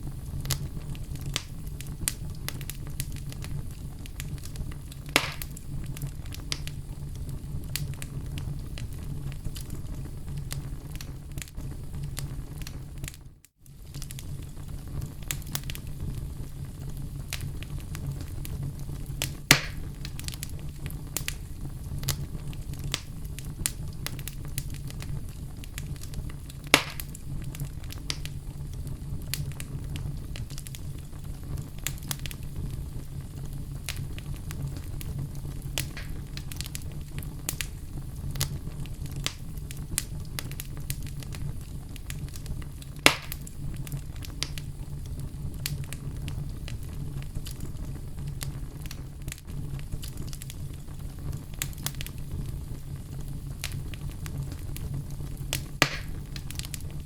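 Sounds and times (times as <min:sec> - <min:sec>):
logs crackling in fireplace: 0:00.0 - 0:57.0
low rumble of flames: 0:00.0 - 0:57.0
wood popping: 0:26.7 - 0:27.2, 0:35.8 - 0:36.8, 0:55.5 - 0:56.7.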